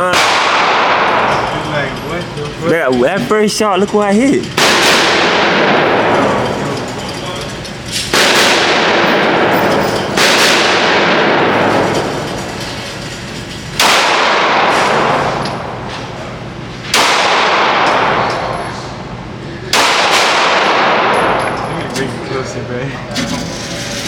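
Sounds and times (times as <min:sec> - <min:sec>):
echoing gunshots: 0:00.0 - 0:01.5, 0:04.5 - 0:06.6, 0:08.1 - 0:12.2, 0:13.8 - 0:15.4, 0:16.9 - 0:18.3, 0:19.7 - 0:21.4.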